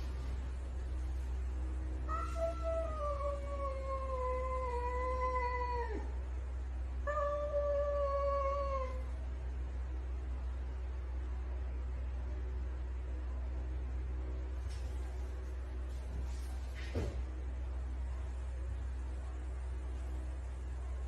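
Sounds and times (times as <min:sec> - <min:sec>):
low hum: 0:00.0 - 0:21.0
cat yowling: 0:02.1 - 0:06.2, 0:07.0 - 0:09.1.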